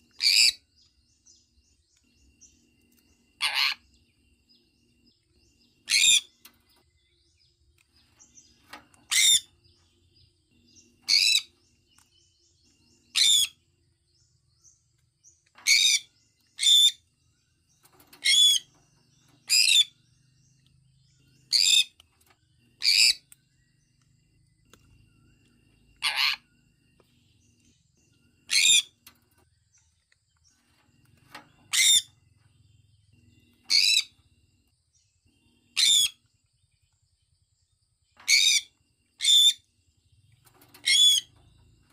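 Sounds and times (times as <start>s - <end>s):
parrot high-pitched chirps: 0.2s - 0.6s, 3.4s - 3.8s, 9.1s - 9.5s, 13.1s - 13.6s, 26.0s - 26.4s, 28.5s - 28.9s, 35.8s - 36.2s, 38.3s - 39.6s.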